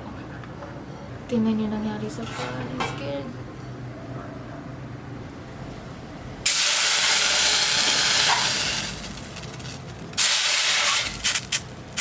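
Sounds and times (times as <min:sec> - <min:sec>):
hot pan sizzling: 0:06.5 - 0:12.0.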